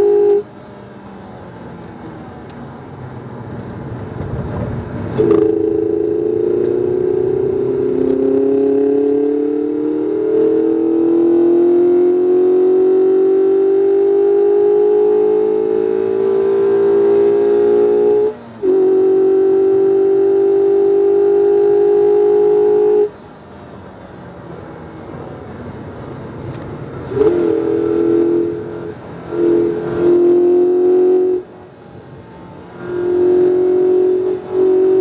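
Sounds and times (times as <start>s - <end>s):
road and wind noise: 0.0s - 35.0s
car engine pulling hard: 1.2s - 35.0s.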